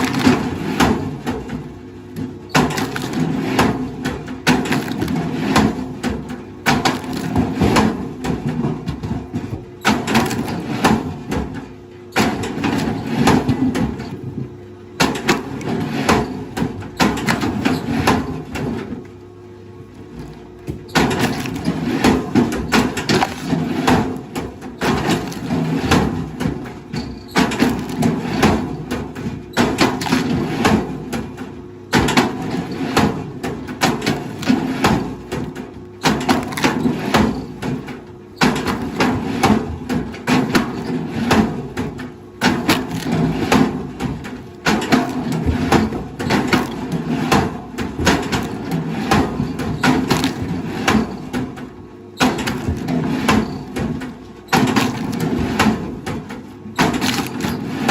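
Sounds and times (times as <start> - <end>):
wood cracking and crunching: 0.0 - 1.6, 2.5 - 8.0, 9.9 - 11.1, 20.3 - 31.2, 33.0 - 57.9.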